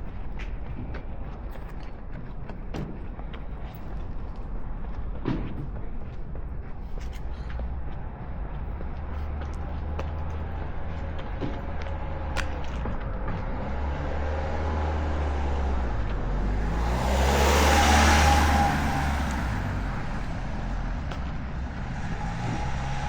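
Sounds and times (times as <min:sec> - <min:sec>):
road traffic rumbling: 0:00.0 - 0:23.0
vehicle passing close: 0:10.4 - 0:23.0.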